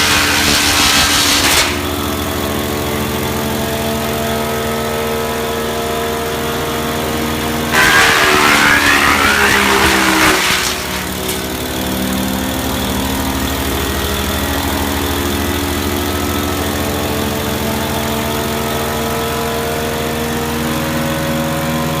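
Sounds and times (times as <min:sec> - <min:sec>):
hissing burst: 0:00.0 - 0:01.9, 0:07.8 - 0:11.6
wood chipper engine running: 0:00.0 - 0:22.0.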